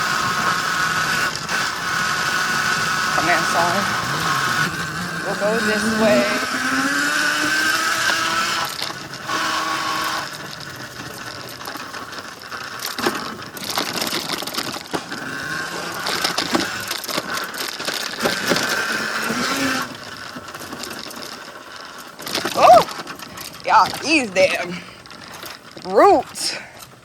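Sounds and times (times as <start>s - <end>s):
electric motor whining: 0.0s - 21.4s
bike knocks and rattles: 10.4s - 18.8s.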